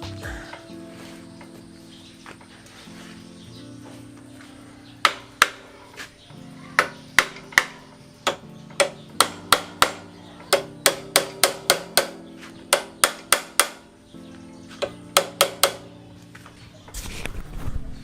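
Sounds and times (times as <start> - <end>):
soft background music: 0.0 - 18.0
hammer striking metal: 6.8 - 13.8.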